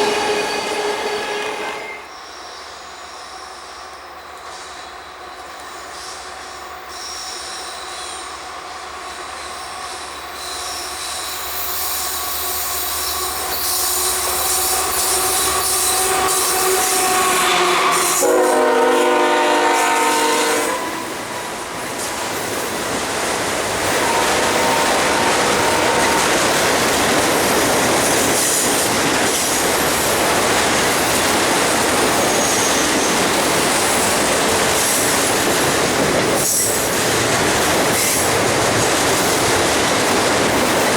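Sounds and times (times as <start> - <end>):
train horn blast: 0.0 - 2.1, 14.0 - 21.2, 23.9 - 26.4
train passing: 0.0 - 40.9
rail clatter: 21.2 - 40.9
wheel squeal: 32.1 - 33.2.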